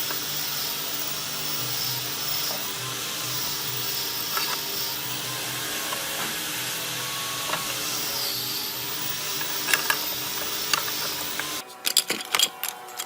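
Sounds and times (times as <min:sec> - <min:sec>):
pulsing machine hum: 0:00.0 - 0:11.6.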